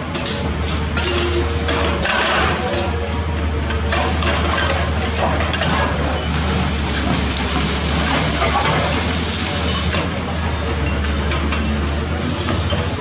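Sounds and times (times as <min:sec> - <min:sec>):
excavator diesel engine: 0:00.0 - 0:13.0
concrete rubble crunching: 0:03.9 - 0:10.3.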